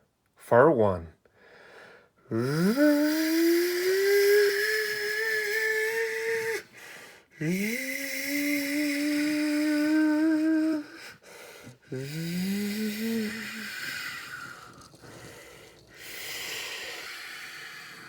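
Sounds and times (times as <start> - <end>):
man imitating jet engine: 11.9 - 14.9.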